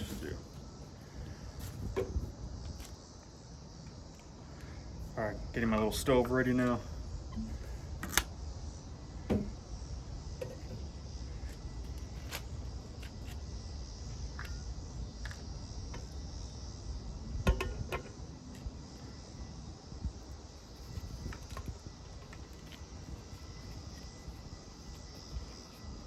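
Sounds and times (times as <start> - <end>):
camp stove clicks and knocks: 17.4 - 18.2.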